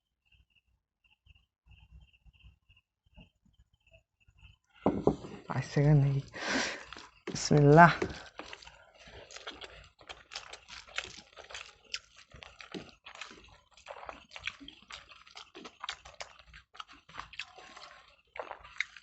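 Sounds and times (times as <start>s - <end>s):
people chewing food: 4.4s - 19.0s.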